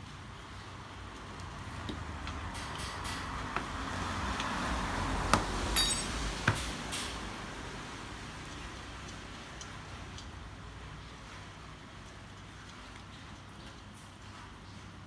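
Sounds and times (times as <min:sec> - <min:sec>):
metal knocks: 0:05.3 - 0:07.2
ringing metallic clink: 0:05.8 - 0:06.3.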